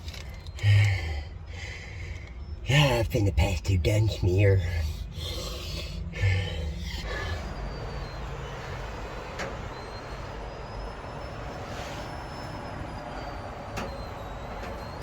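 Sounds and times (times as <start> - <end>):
freight train rumbling: 4.1 - 15.0
faint high squeal: 4.5 - 15.0.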